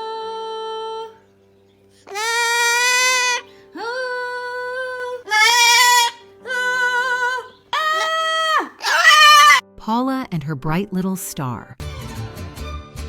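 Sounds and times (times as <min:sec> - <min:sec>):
parrot singing long notes: 0:02.1 - 0:04.6, 0:05.2 - 0:09.6.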